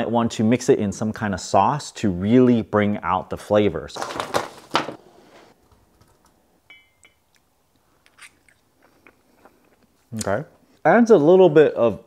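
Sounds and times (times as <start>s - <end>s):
mouth clicks and smacks chewing: 7.3s - 10.3s.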